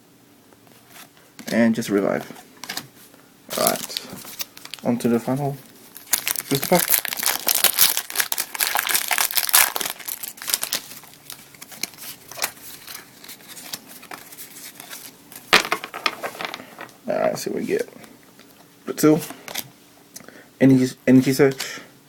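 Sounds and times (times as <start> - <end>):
foil wrapper crinkling and tearing: 3.5 - 5.1, 5.8 - 15.2.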